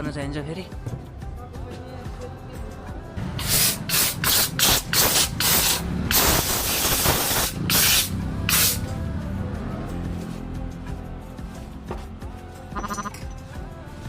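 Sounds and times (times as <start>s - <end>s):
hissing spray from nozzle: 3.4s - 8.9s.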